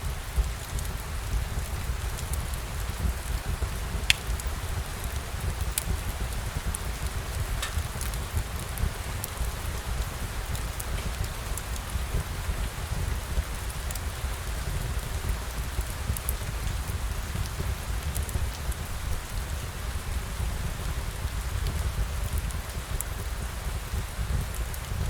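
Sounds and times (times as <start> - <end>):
rain pattering: 0.0 - 25.0.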